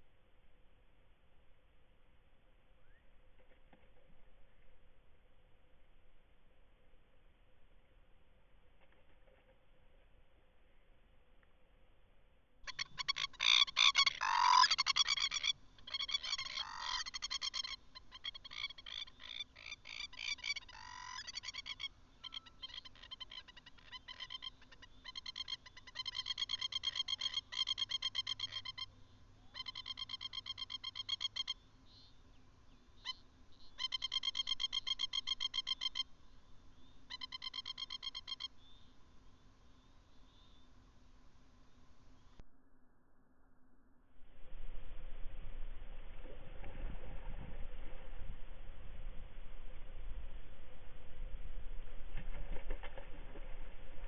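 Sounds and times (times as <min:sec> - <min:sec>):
frogs calling with rattling pulses: 0:12.7 - 0:28.9, 0:29.5 - 0:32.1, 0:33.0 - 0:36.1, 0:37.1 - 0:38.6.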